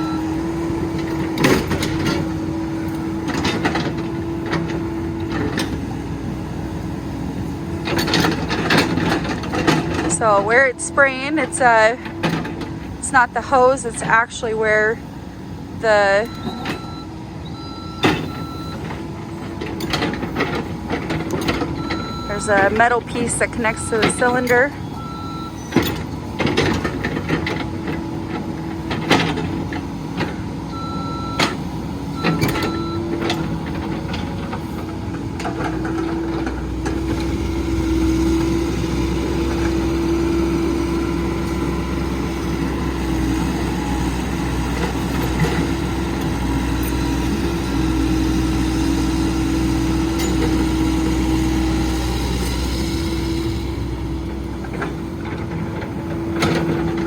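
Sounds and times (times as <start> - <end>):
excavator diesel engine running: 0.0 - 57.0
short beeps: 16.1 - 18.8, 21.8 - 25.6.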